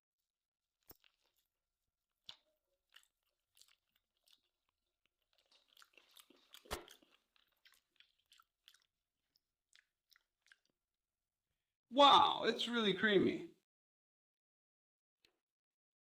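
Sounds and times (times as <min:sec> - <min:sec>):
chewing crispy fat: 0:00.8 - 0:11.2.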